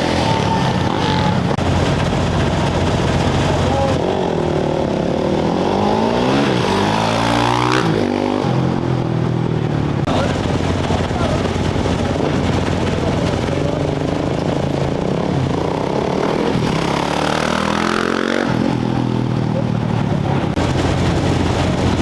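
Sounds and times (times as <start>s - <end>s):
motorcycle engines running: 0.0s - 22.0s
motorcycle revving and accelerating: 0.0s - 22.0s.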